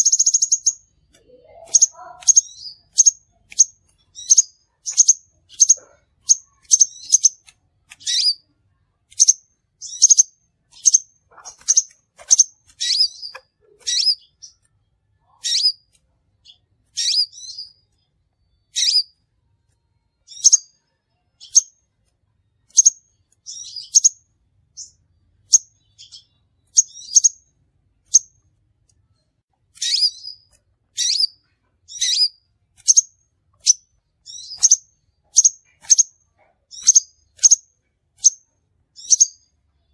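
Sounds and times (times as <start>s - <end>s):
bird high chirps: 0.0s - 28.5s, 29.7s - 39.9s.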